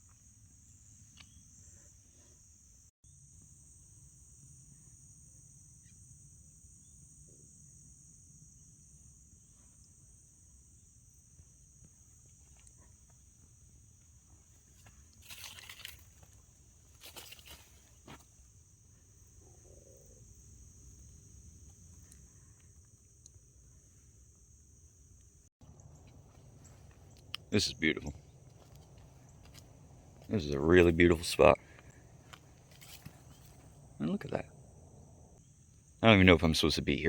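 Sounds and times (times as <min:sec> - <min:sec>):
insect chorus: 0:00.0 - 0:37.0
crunching noises: 0:14.5 - 0:18.3, 0:25.6 - 0:34.5.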